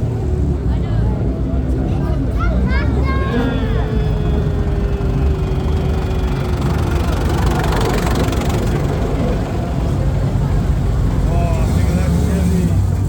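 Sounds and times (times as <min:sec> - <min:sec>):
car engine idling: 0:00.0 - 0:13.0
faint tone sinking in pitch: 0:02.9 - 0:08.4.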